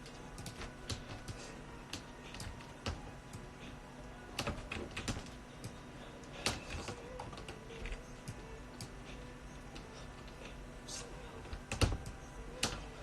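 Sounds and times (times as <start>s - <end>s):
computer keyboard typing: 0.0s - 3.5s, 4.3s - 9.0s, 11.4s - 13.0s
faint steady hum: 0.0s - 13.0s.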